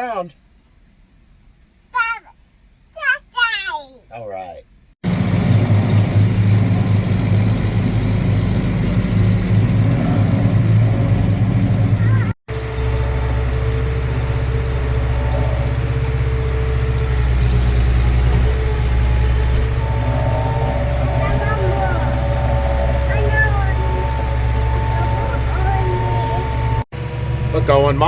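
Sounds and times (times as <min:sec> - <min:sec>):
tractor engine running: 0:05.0 - 0:28.0
faint high steady tone: 0:19.8 - 0:26.8.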